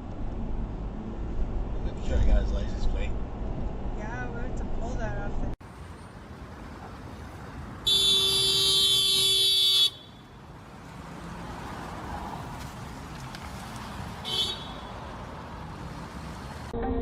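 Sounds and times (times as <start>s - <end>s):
road noise: 0.0s - 17.0s
car horn honking: 7.8s - 10.5s, 14.2s - 15.2s.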